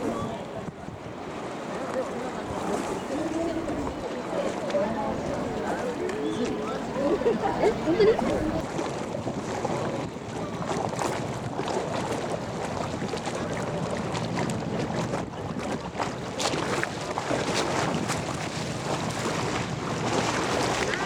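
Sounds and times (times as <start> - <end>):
ship engine humming: 0.0 - 8.6
wind on microphone: 0.0 - 21.0.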